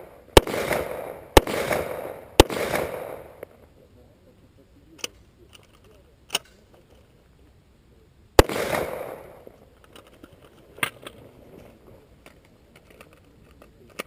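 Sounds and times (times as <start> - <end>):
distant gunshots: 0.0 - 3.6, 8.4 - 9.6
rifle shot close by: 0.0 - 3.6, 8.4 - 9.6.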